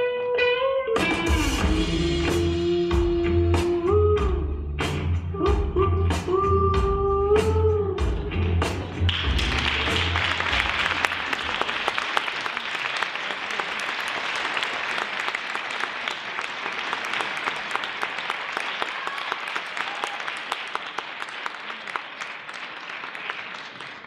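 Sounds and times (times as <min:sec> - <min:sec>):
audience applauding: 0:09.1 - 0:24.0.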